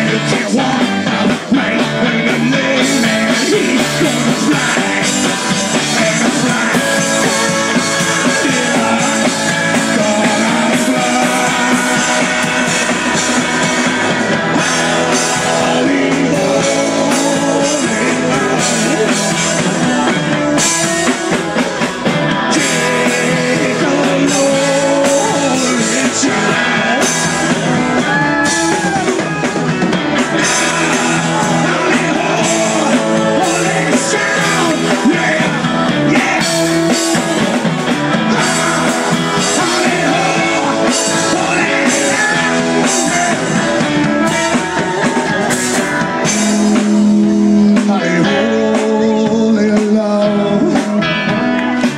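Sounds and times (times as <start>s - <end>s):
drum kit: 0.0s - 51.9s
electric guitar: 0.0s - 51.9s
live rock band playing: 0.0s - 51.9s
person singing: 0.0s - 51.9s.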